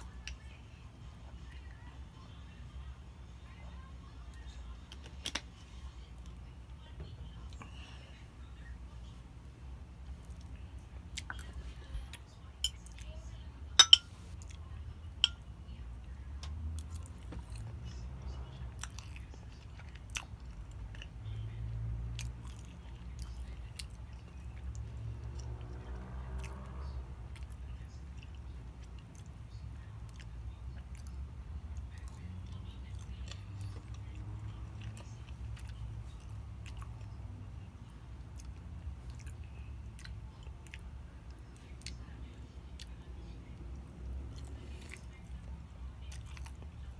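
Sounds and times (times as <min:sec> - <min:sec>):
person chewing wetly: 0:18.8 - 0:21.5, 0:22.1 - 0:37.2, 0:38.2 - 0:42.1, 0:42.7 - 0:46.9.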